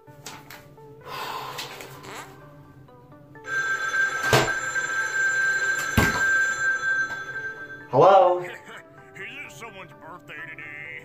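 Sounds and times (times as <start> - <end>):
soft background music: 0.0 - 11.0
phone ringing: 3.4 - 9.0.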